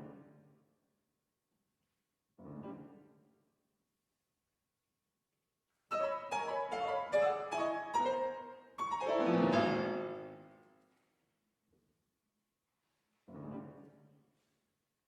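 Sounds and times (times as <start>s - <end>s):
piano chords: 5.9s - 10.6s.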